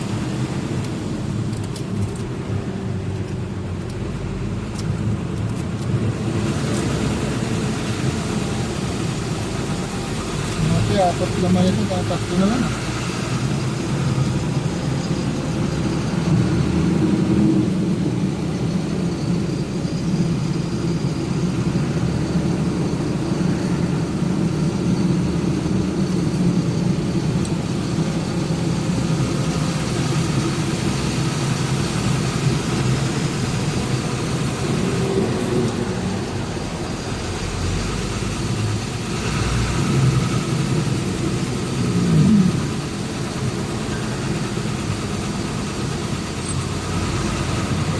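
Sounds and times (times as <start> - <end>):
road noise: 0.0 - 47.9
truck engine running: 0.0 - 47.9.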